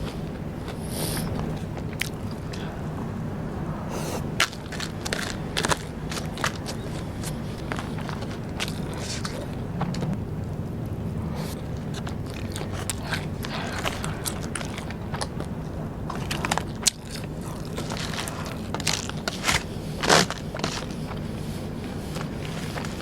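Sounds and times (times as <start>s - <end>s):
crunchy snack chewing: 3.9s - 10.2s, 11.2s - 23.0s.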